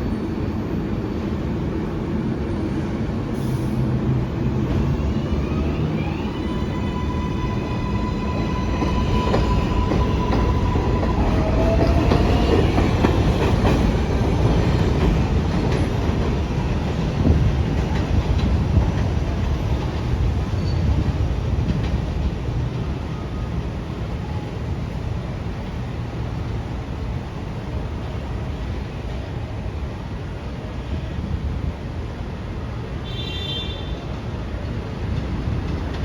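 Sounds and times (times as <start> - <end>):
train wheels clattering on rails: 7.5 - 23.1, 34.0 - 36.0.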